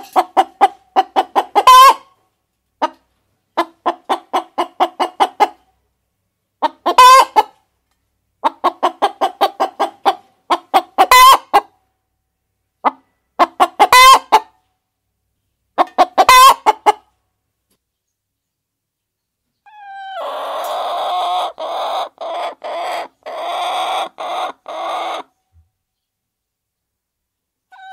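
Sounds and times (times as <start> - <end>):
hens clucking and squawking: 0.0 - 2.2, 2.8 - 5.7, 6.6 - 7.6, 8.4 - 11.8, 12.8 - 14.6, 15.8 - 17.1, 19.7 - 25.4.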